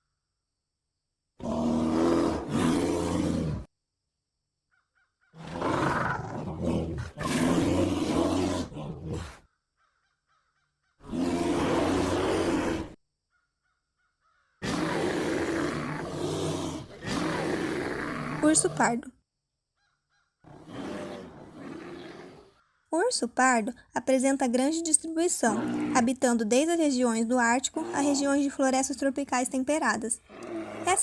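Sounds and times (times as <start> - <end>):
bear roaring and growling: 1.4 - 3.7, 5.4 - 9.4, 11.0 - 13.0, 14.6 - 19.0, 20.4 - 22.6, 25.4 - 26.2, 27.6 - 28.6, 30.2 - 31.0.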